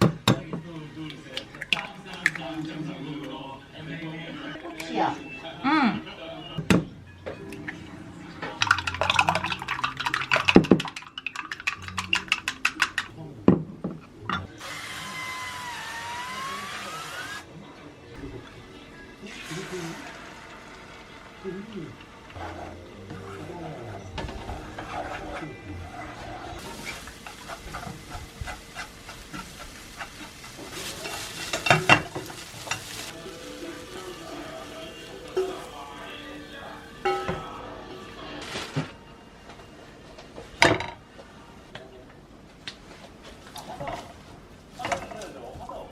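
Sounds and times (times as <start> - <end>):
kitchen utensils clicking and tapping: 8.6 - 13.1
spatula scraping frying pan: 22.3 - 33.1
meat sizzling in a frying pan: 26.6 - 37.0.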